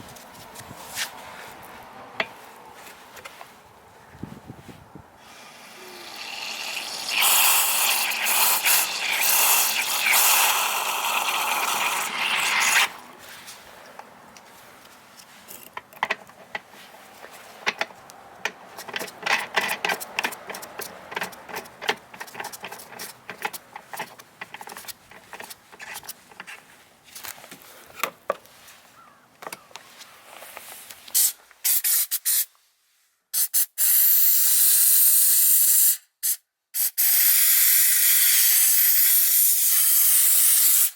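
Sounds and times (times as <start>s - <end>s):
loud hiss: 5.2s - 13.0s, 33.4s - 40.9s.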